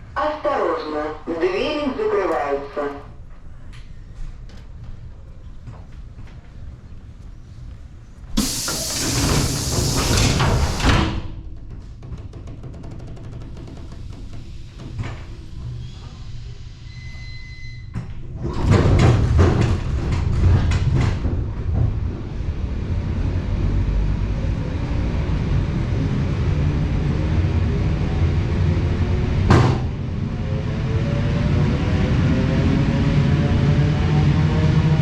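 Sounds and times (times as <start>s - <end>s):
rumble of train wheels: 0.0s - 35.0s
train traction motor whine: 8.4s - 11.4s
train doors banging shut: 8.4s - 15.6s, 29.4s - 30.0s.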